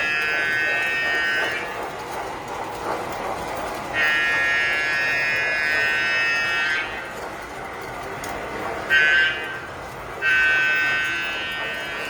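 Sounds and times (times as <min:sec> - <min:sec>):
toy train electronic horn: 0:00.0 - 0:01.8, 0:03.9 - 0:07.1, 0:08.9 - 0:12.0
toy train rattling on track: 0:00.0 - 0:12.0.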